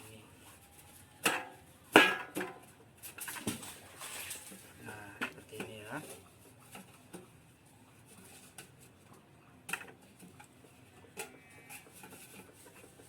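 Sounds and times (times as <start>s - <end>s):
tin can clicking and knocking: 1.2s - 3.7s.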